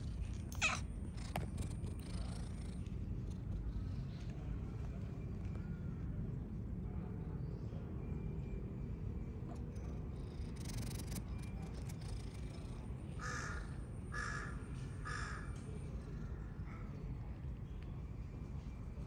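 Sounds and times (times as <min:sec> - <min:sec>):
low background rumble: 0:00.0 - 0:14.2.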